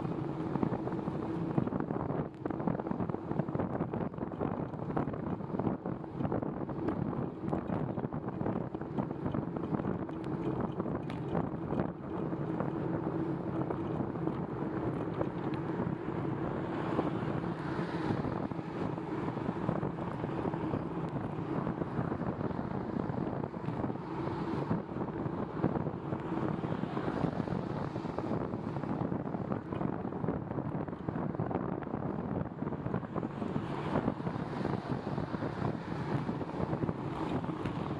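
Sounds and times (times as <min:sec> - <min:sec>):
wind rush on microphone: 0:00.0 - 0:37.9
tyres on wet pavement: 0:32.9 - 0:37.9.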